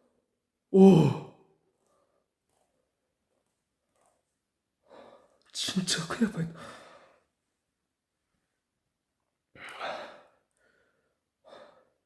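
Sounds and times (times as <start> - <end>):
man's drawn-out oh: 0.7 - 1.4
breathy sigh: 0.8 - 1.3.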